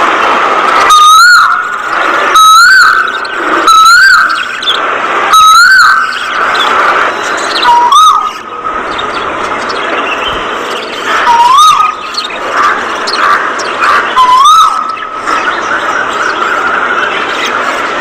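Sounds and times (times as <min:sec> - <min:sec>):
budgerigars chattering and chirping: 0:00.8 - 0:18.0
loud rising and falling whistle: 0:00.9 - 0:04.7, 0:05.3 - 0:06.6, 0:07.6 - 0:08.4, 0:11.2 - 0:12.0, 0:14.2 - 0:15.0.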